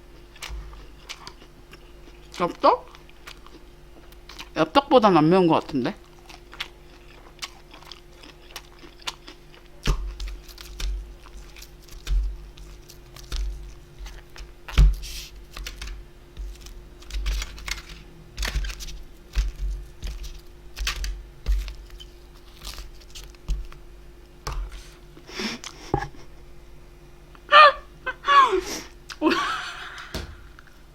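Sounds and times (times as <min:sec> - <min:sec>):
person chewing and eating: 0:00.0 - 0:04.6, 0:06.0 - 0:23.8
faint steady hum: 0:00.0 - 0:30.9.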